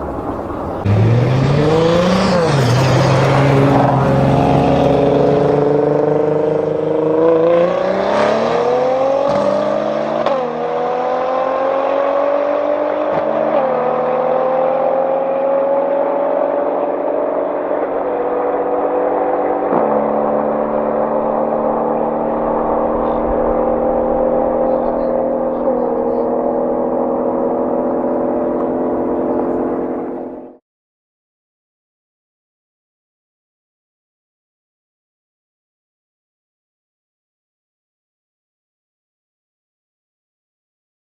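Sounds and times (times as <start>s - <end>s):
car engine accelerating hard: 0.0s - 30.6s.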